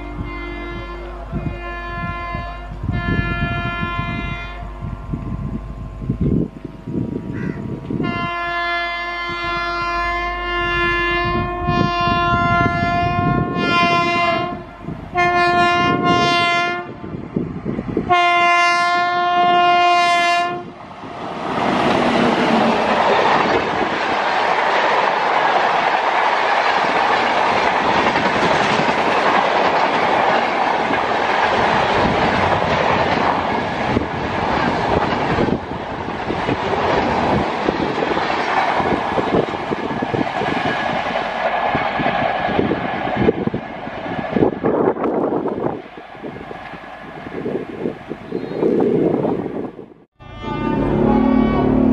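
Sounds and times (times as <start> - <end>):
train horn blasts: 0.0 - 17.2, 18.0 - 20.8, 50.1 - 51.9
train wheels clattering on rails: 21.0 - 47.0.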